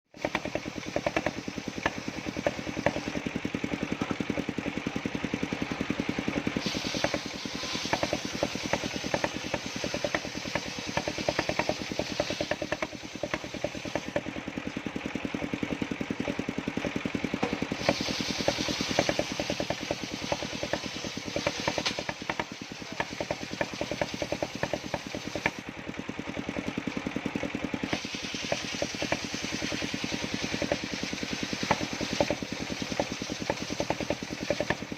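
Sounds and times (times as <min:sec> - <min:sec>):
sawmill engine knocking: 0:00.1 - 0:34.9
bright hiss: 0:06.6 - 0:14.1, 0:17.7 - 0:22.2.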